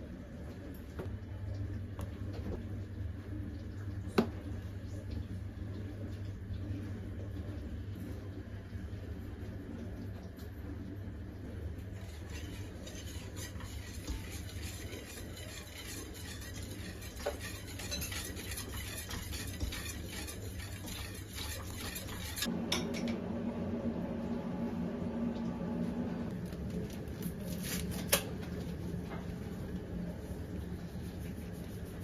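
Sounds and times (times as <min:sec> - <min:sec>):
steady low hum: 0:00.0 - 0:32.0
utensil scraping cookware: 0:11.9 - 0:22.5.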